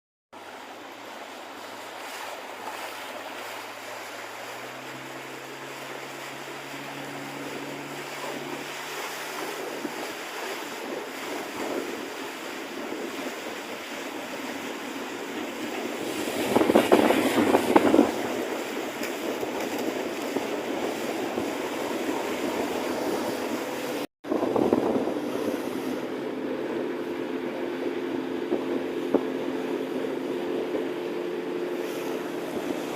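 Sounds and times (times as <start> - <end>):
water rushing: 0.4 - 32.9
wind on microphone: 1.9 - 32.9.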